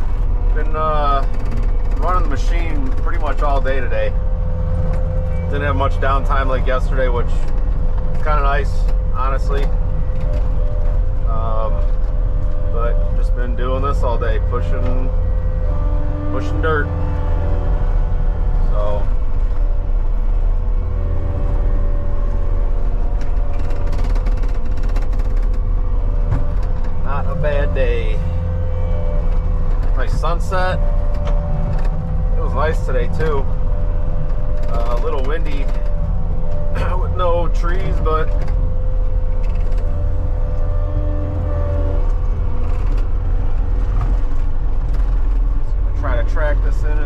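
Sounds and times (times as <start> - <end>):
rapid clicking and rattling: 0.0 - 17.6, 18.7 - 47.0
diesel engine running: 0.0 - 47.0
engine whine: 0.0 - 47.0.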